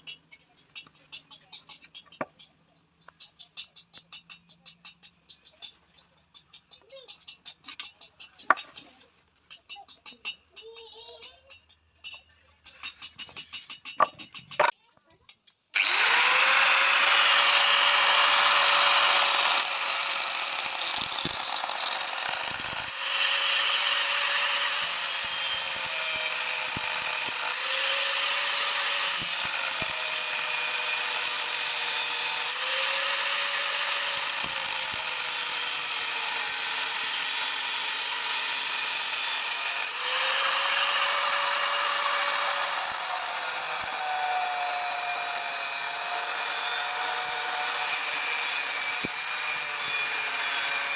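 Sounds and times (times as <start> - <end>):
power tool motor whine: 15.8 - 50.9.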